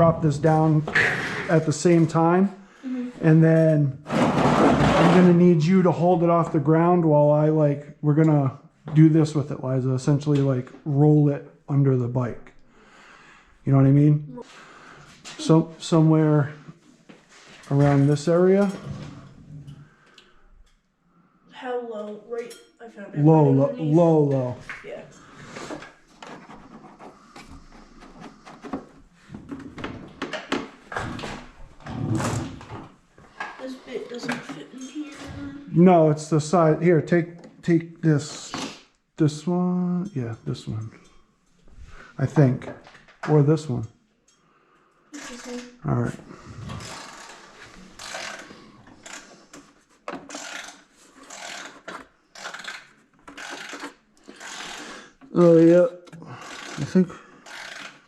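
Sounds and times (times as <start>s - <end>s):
hand ratchet clicking: 48.0s - 49.4s, 50.3s - 54.9s, 56.1s - 58.0s.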